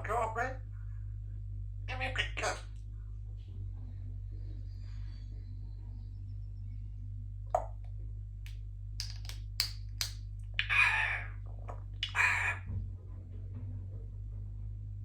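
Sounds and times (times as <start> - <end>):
steady low hum: 0.0 - 15.0
parrot harsh calls: 1.9 - 2.7, 10.6 - 11.4, 12.0 - 12.7
parrot clicking: 9.0 - 11.0.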